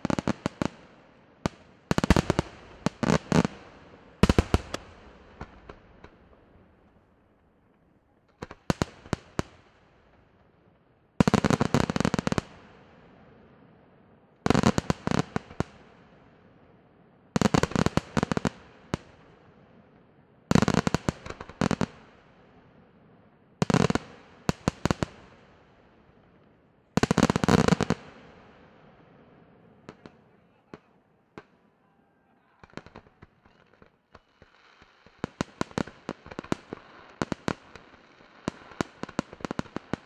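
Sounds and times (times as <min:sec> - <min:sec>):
fireworks bangs: 0:01.5 - 0:09.6, 0:32.4 - 0:40.0.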